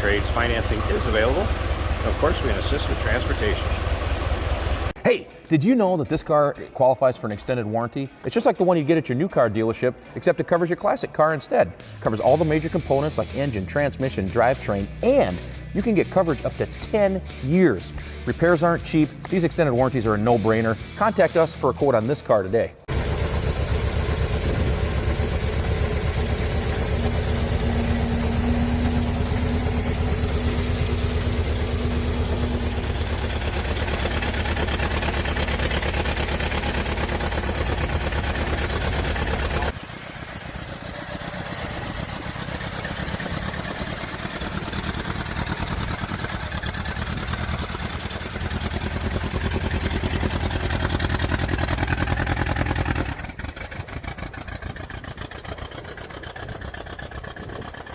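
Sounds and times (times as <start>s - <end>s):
car engine idling: 0.0s - 5.0s, 22.9s - 57.9s.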